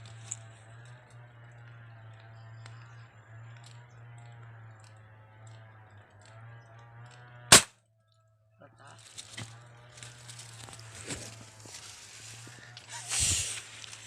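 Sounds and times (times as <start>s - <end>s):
air gun shot: 7.5s - 7.7s.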